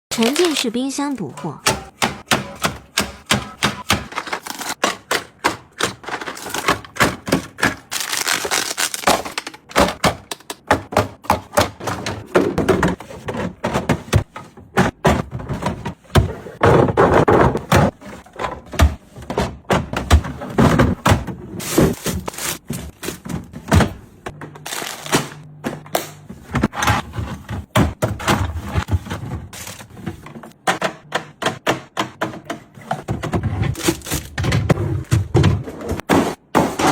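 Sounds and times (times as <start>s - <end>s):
containers knocking on fridge shelves: 1.6s - 36.9s.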